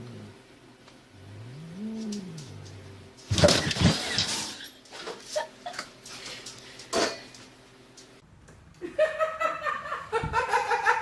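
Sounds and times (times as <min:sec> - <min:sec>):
person laughing: 0:08.8 - 0:11.0.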